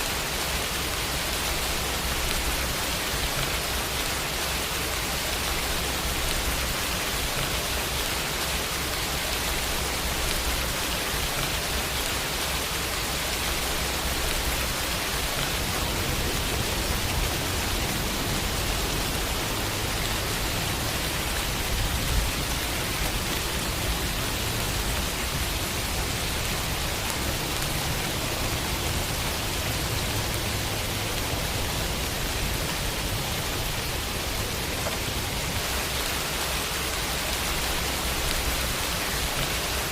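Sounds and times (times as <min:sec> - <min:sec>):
rain on a window: 0:00.0 - 0:39.9.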